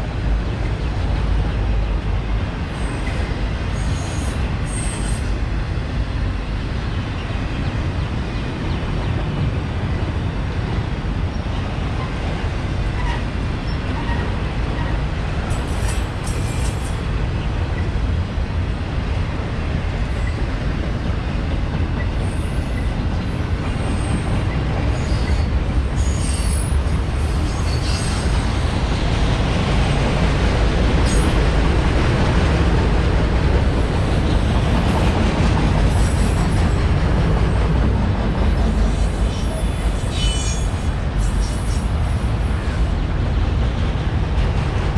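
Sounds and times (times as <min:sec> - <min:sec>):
freight train rumbling past: 0:00.0 - 0:44.9
train wheel squeals: 0:02.7 - 0:05.4, 0:13.0 - 0:17.2, 0:22.0 - 0:28.8, 0:31.0 - 0:31.4, 0:34.8 - 0:36.9, 0:38.6 - 0:42.8.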